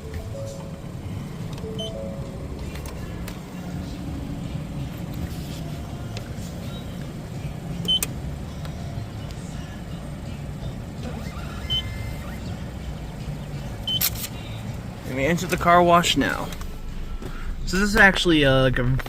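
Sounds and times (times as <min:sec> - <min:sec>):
car engine idling: 0:00.0 - 0:19.0
short high beeps: 0:01.8 - 0:02.0.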